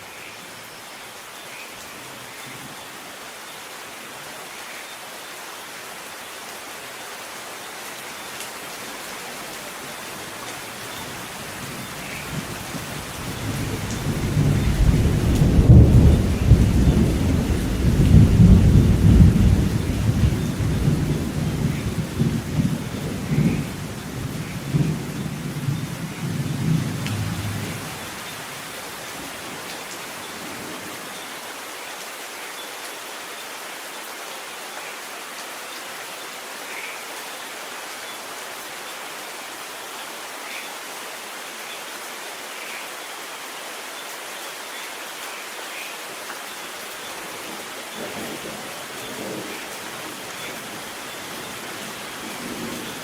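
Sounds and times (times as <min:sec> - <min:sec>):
heavy rain falling: 0:00.0 - 0:53.0
thunder rumbling: 0:11.6 - 0:28.2.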